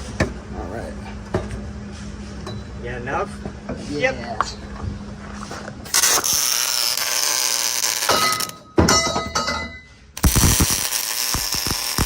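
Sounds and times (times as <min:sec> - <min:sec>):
welding arc crackling and hissing: 0:05.9 - 0:08.5, 0:10.2 - 0:12.0.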